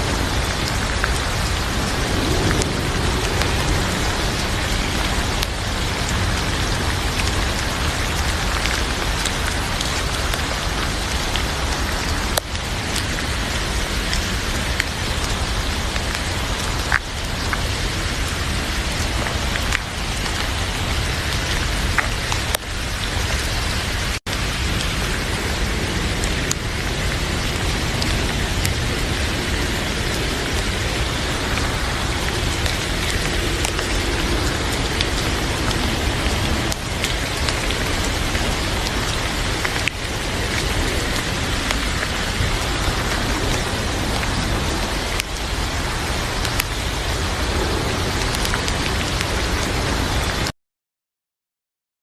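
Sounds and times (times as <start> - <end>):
heavy rain: 0.0 - 50.5.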